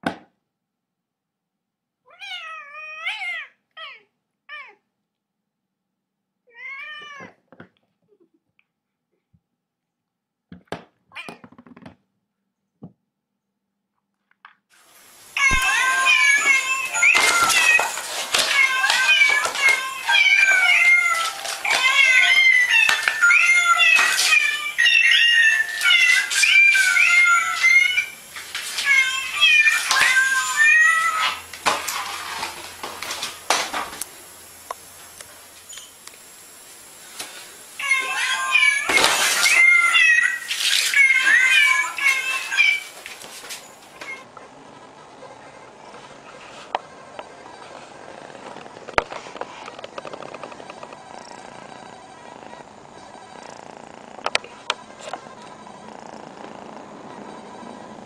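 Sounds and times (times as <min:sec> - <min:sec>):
cat meowing: 0:02.1 - 0:04.8, 0:06.5 - 0:07.4, 0:15.3 - 0:31.5, 0:37.8 - 0:42.9.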